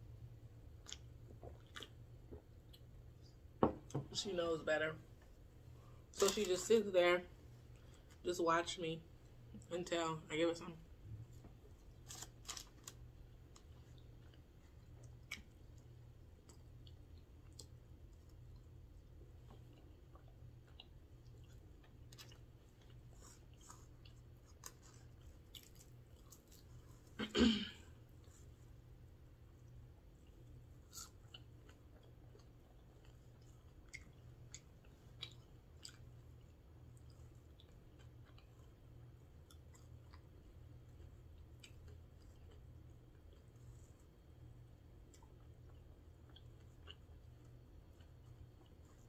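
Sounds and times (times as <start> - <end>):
low steady hum: 0.0 - 49.0
person chewing fries: 0.6 - 3.1, 11.5 - 27.2, 28.1 - 49.0
soft mouth clicks and smacks: 0.8 - 2.9.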